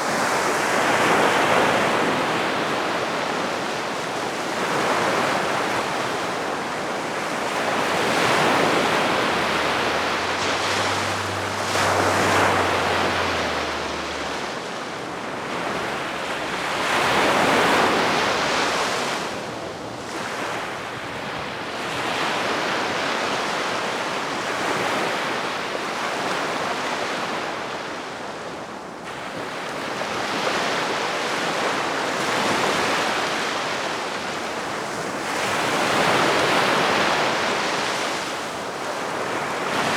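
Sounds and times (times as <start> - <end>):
sea waves washing on shore: 0.0 - 25.4.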